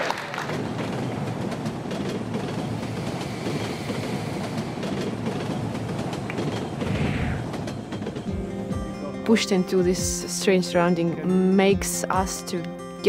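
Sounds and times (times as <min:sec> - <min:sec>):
train rumbling on rails: 0:00.0 - 0:09.0.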